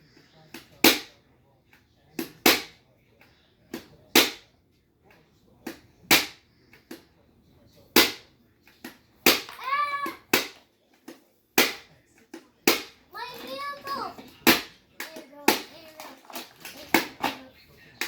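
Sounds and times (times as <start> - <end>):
plastic toy pieces clacking: 13.3 - 17.5.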